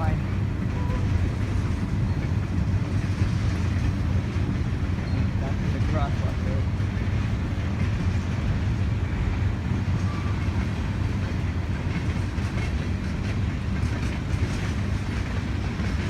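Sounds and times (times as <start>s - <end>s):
train rumbling along track: 0.0s - 16.0s.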